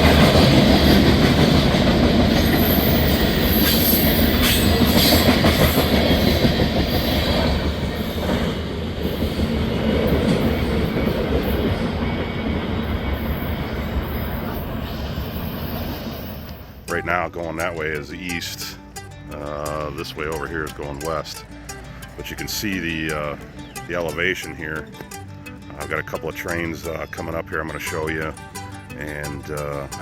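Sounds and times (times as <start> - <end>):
steel wheels rumbling on rails: 0.0 - 16.9.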